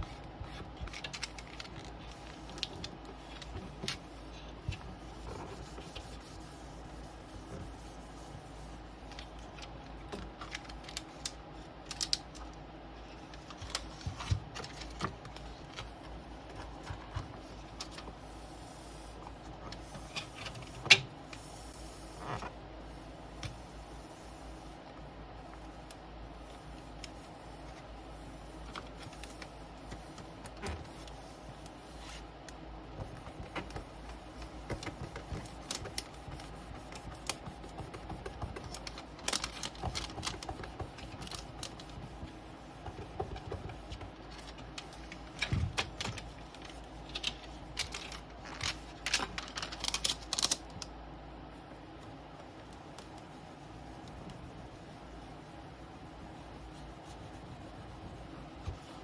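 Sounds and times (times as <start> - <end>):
faint low hum: 0.0 - 59.0
plastic film handled: 0.7 - 4.1, 33.4 - 42.1, 42.9 - 50.8.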